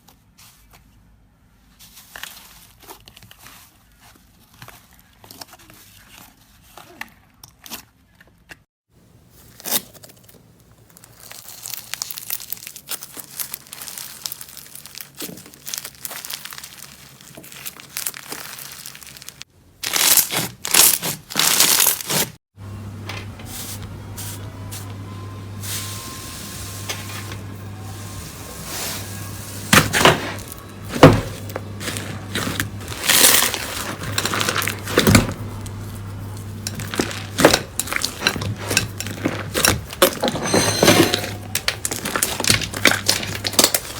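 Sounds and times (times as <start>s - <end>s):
slime squished by hand: 10.9s - 22.3s.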